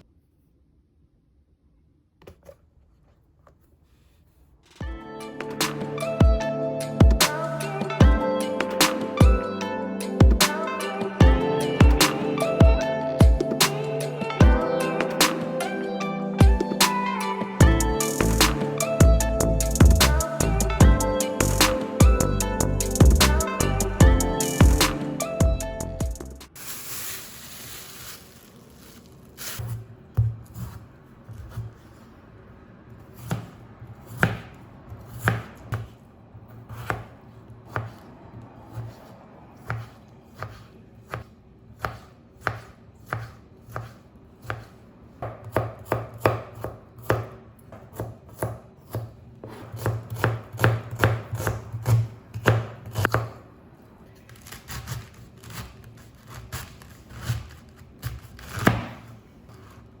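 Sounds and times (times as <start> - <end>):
knife chopping on cutting board: 33.2 - 36.0, 36.7 - 37.1, 38.7 - 53.4, 56.3 - 59.2.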